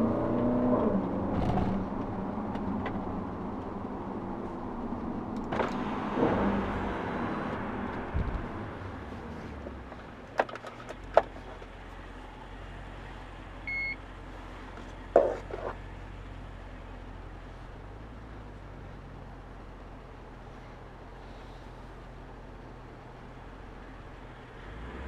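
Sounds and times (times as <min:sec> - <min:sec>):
car engine idling low: 0:03.0 - 0:24.6
short electronic beep: 0:13.7 - 0:14.0.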